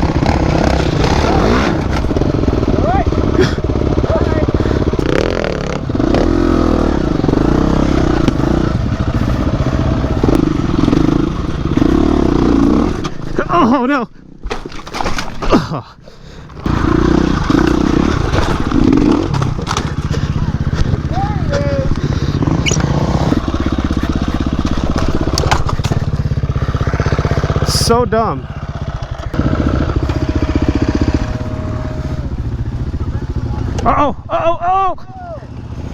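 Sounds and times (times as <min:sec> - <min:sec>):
dirt bike engine revving: 0:00.0 - 0:13.8, 0:16.2 - 0:34.3
sharp knocks from bike: 0:17.5 - 0:20.2, 0:22.6 - 0:26.4.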